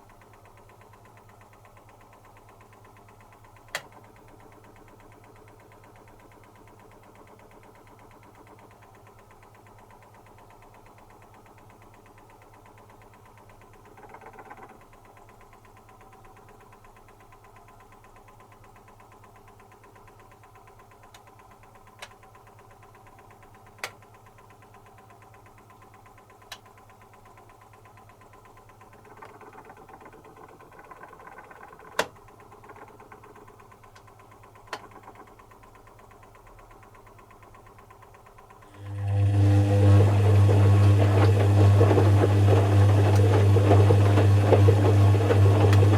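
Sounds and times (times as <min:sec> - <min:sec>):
washing machine humming: 0:32.2 - 0:45.9.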